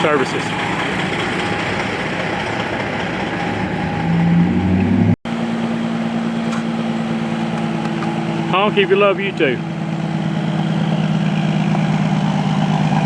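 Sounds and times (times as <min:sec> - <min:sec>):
low truck engine note: 0:00.0 - 0:05.1
trucks passing on highway: 0:00.0 - 0:12.8.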